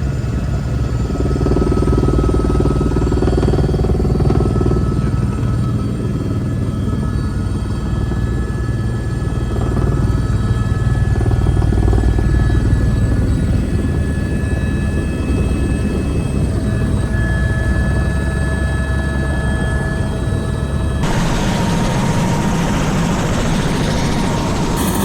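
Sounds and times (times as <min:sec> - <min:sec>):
helicopter rotor and engine rumble: 0:00.0 - 0:25.0
high whining tones: 0:21.0 - 0:25.0.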